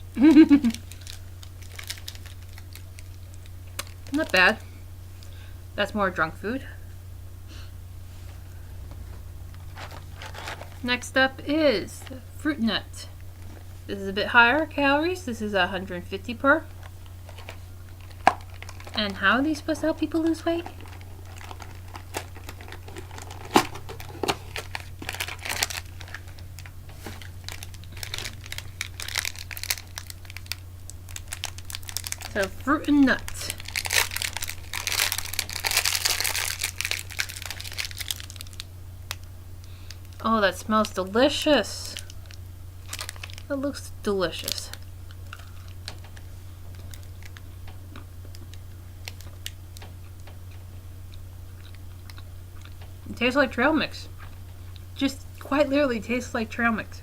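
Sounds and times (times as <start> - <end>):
plastic wrapper crinkling: 0.0 - 5.4, 8.8 - 11.1, 16.6 - 50.6
steady low hum: 0.0 - 57.0
chewing crunchy bar: 20.6 - 32.4, 45.1 - 53.0.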